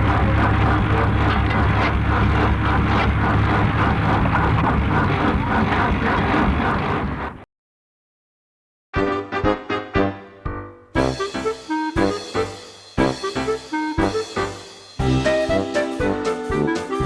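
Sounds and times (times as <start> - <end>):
deep low hum: 0.0 - 7.4
engine pulsing beat: 0.0 - 7.4.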